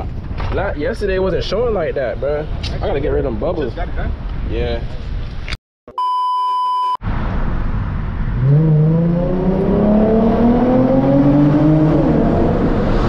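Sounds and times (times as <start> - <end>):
road and tyre noise: 0.0 - 5.6, 7.0 - 13.0
car engine accelerating: 7.2 - 13.0.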